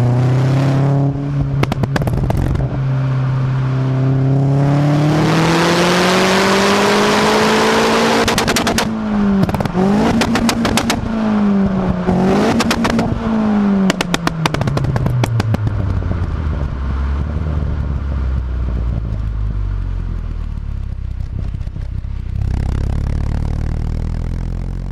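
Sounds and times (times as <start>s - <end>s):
car engine revving: 0.0s - 24.9s
exhaust pops and bangs: 1.5s - 2.7s, 8.2s - 11.1s, 12.5s - 13.2s, 13.8s - 23.4s.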